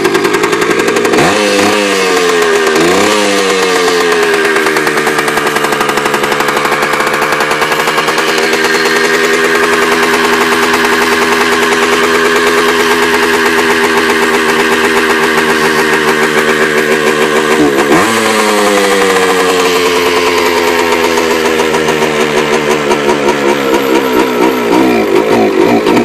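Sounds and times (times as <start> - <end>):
engine throttle blips: 0.0 - 26.0
two-stroke motorcycle engine idling: 0.0 - 26.0.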